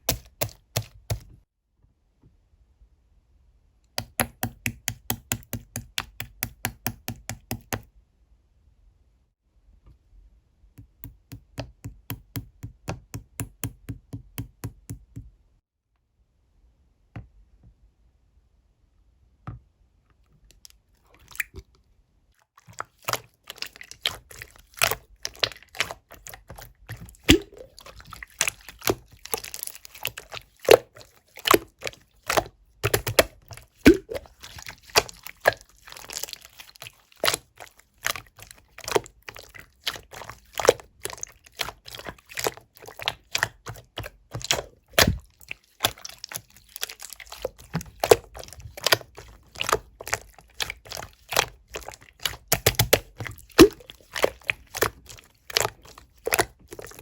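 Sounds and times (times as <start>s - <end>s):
slime squished by hand popping: 44.4s - 45.3s, 52.2s - 54.9s.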